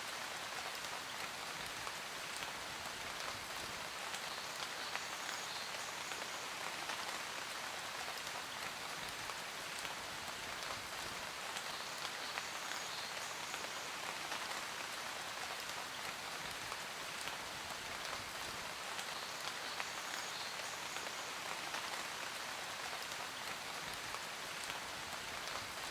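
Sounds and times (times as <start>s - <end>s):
steady rain falling: 0.0s - 25.9s.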